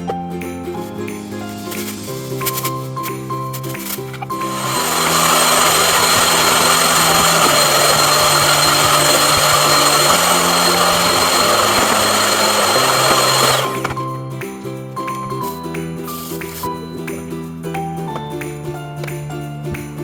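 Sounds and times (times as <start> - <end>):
background music: 0.0 - 20.0
vacuum cleaner whining: 3.8 - 14.0.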